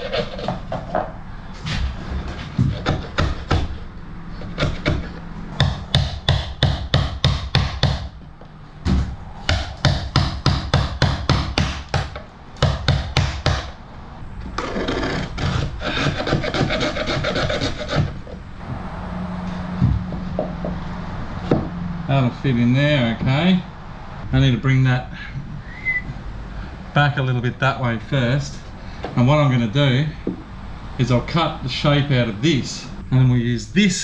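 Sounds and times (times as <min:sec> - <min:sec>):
continuous scraping: 0:00.0 - 0:05.6, 0:14.1 - 0:21.5
steady low hum: 0:00.0 - 0:34.0.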